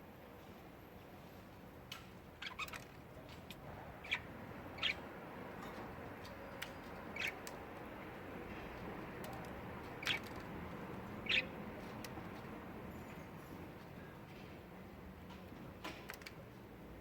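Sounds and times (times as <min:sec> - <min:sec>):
budgerigar chirping: 0:04.0 - 0:05.0, 0:07.1 - 0:07.4, 0:11.2 - 0:11.6.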